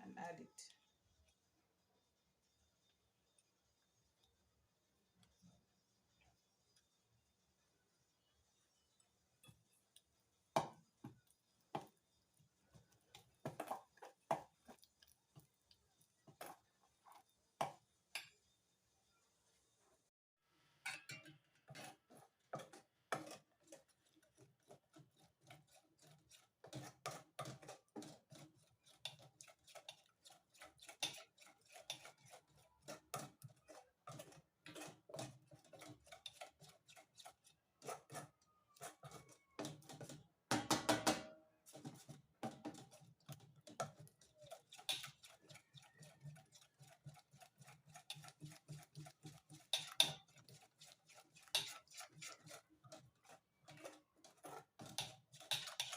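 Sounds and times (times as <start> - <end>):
spoon scraping a bowl: 8.6 - 18.6, 20.9 - 40.2, 41.6 - 55.9.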